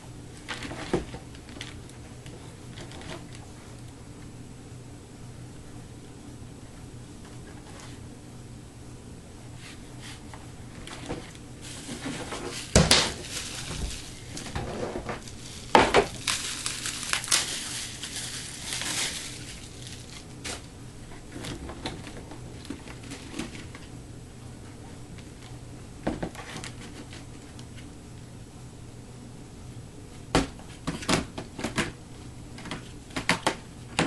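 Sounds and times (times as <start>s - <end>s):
plastic wrapping crinkling: 11.3s - 20.8s.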